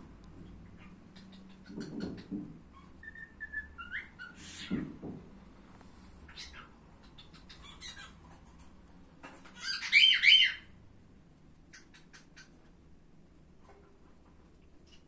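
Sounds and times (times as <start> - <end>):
bird squawking: 6.3 - 8.2, 9.5 - 10.7.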